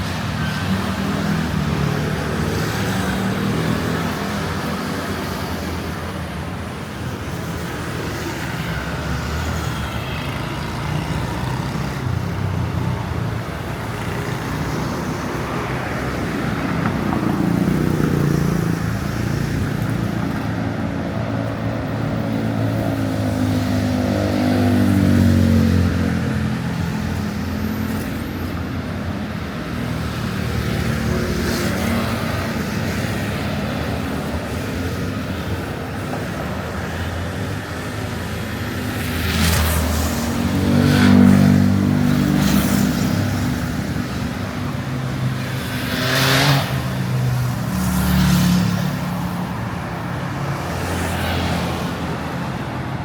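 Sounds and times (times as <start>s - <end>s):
road noise of passing cars: 0.0s - 53.0s.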